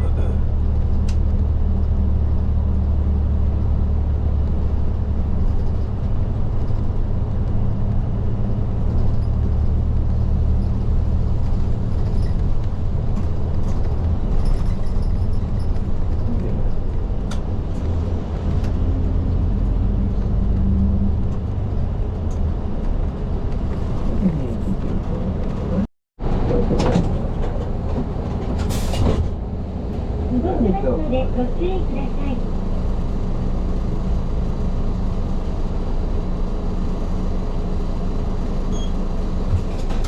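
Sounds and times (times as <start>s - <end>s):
bus engine and road drone: 0.0s - 40.0s
interior rattles and clicks: 3.5s - 29.4s.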